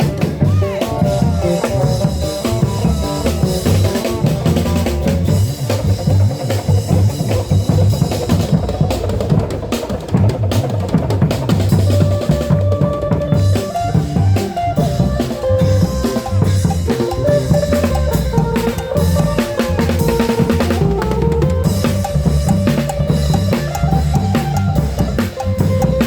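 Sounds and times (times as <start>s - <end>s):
long-drum band playing rhythm: 0.0s - 26.0s
melody of held notes: 12.0s - 26.0s.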